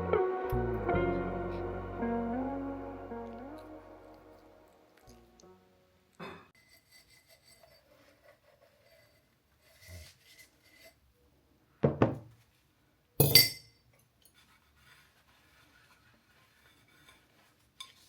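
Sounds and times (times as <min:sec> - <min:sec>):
glassy clink with ring: 0:13.2 - 0:13.8.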